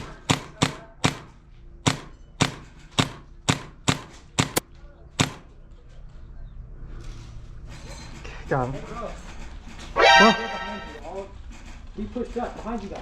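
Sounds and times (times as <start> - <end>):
airsoft gun shots: 0.0 - 4.6, 5.2 - 5.5.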